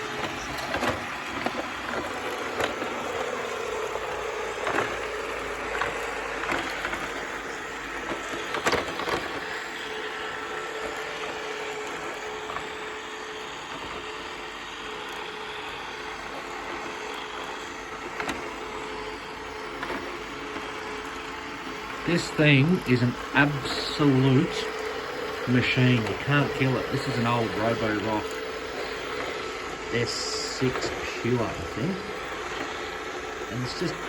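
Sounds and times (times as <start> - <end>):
robot vacuum motor hum: 0.0 - 34.0.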